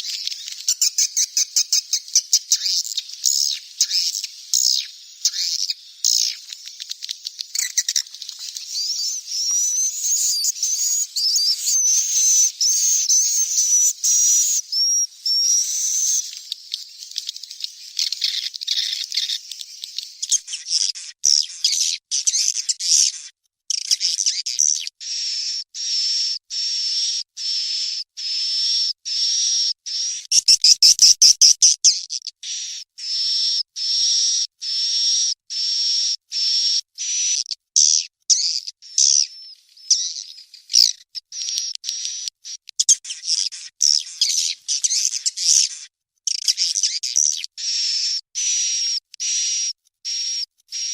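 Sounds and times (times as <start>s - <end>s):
bird chicks chirping: 0.0s - 22.4s.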